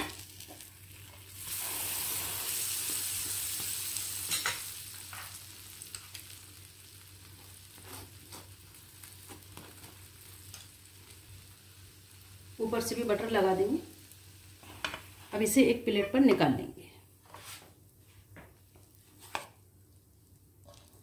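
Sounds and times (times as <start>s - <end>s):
butter sizzling on a hot pan: 0.0s - 16.3s.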